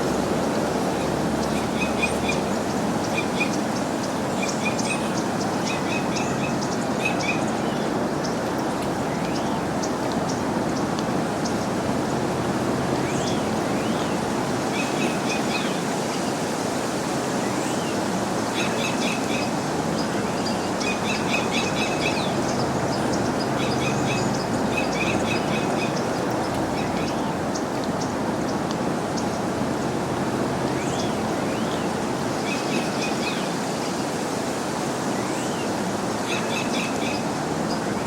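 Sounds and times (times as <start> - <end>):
steady rushing outdoor noise: 0.0 - 38.0
small birds chirping: 0.9 - 15.9, 18.6 - 33.5.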